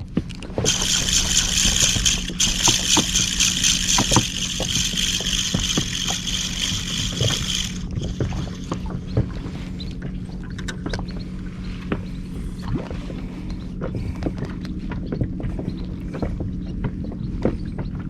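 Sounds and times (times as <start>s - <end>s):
high hissing whir: 0.6s - 9.0s
low hum: 0.6s - 14.3s.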